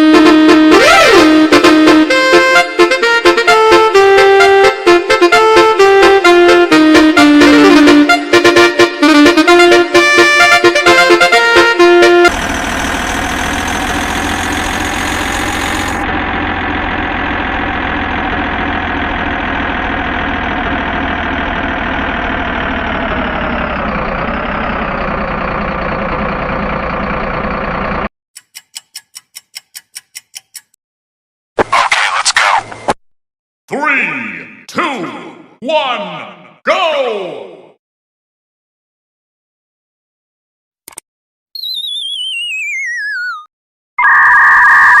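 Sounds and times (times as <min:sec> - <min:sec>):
truck horn tone: 0:00.0 - 0:16.3
truck engine rumble: 0:09.0 - 0:28.1
rapid ticks: 0:28.4 - 0:30.8.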